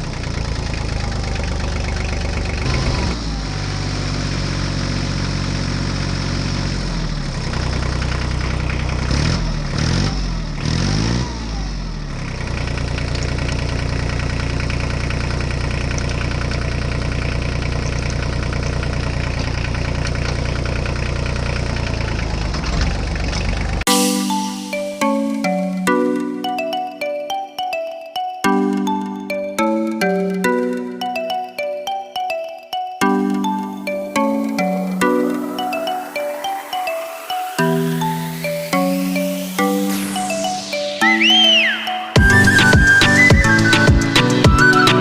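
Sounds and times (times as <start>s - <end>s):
small tractor engine running: 0.0s - 23.9s.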